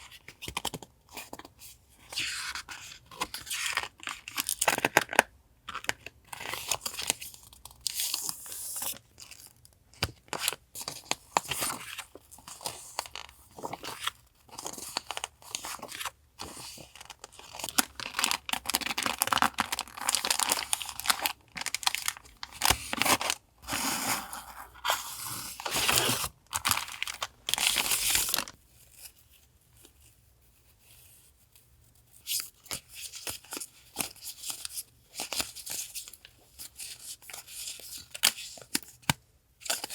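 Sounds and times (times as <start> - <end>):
paper and plastic crinkling: 10.3 - 29.0.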